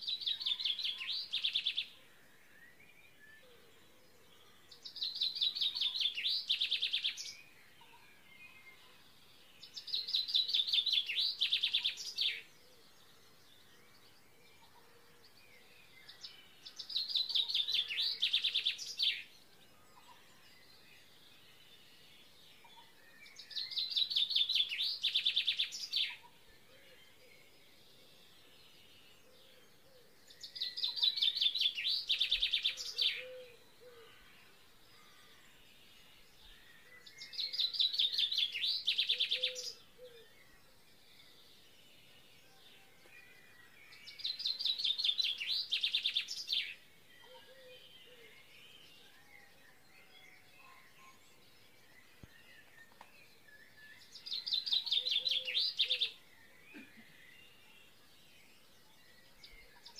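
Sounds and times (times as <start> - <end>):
faint steady background noise: 0.0 - 59.9
songbird trilling: 37.2 - 40.3.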